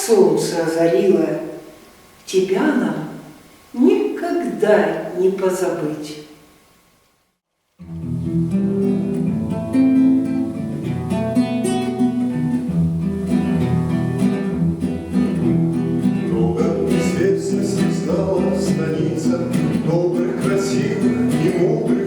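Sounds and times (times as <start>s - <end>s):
acoustic guitar strummed and plucked: 7.8s - 22.0s.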